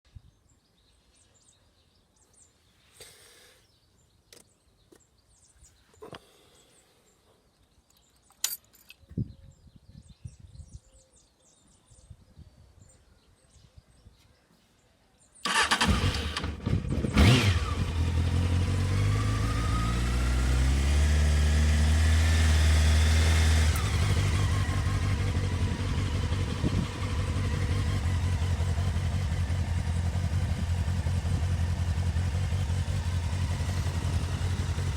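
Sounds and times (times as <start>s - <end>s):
motorcycle engine starting and idling: 15.4s - 34.9s.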